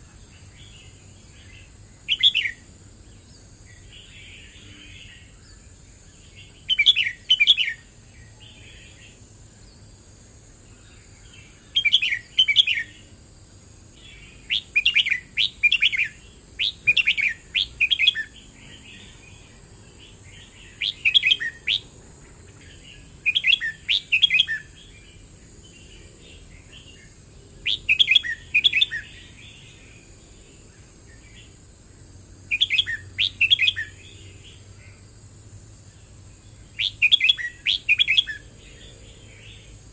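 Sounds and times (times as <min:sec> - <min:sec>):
bird singing whistled phrases: 0:02.1 - 0:02.6, 0:06.6 - 0:07.8, 0:11.7 - 0:13.0, 0:14.5 - 0:18.4, 0:20.7 - 0:21.9, 0:23.2 - 0:24.8, 0:27.6 - 0:29.2, 0:32.5 - 0:34.0, 0:36.8 - 0:38.5.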